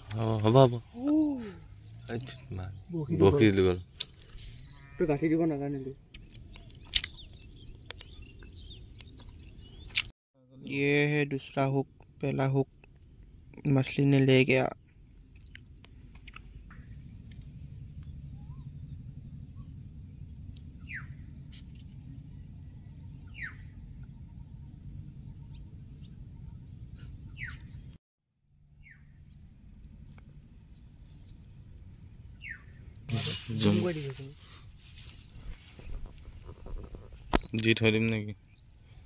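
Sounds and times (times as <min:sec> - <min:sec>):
steady low rumble: 0:11.8 - 0:39.0.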